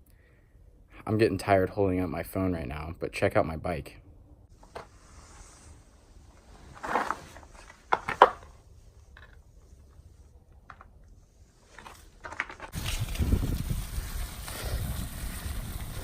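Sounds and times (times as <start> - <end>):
wind on microphone: 12.8 - 16.0.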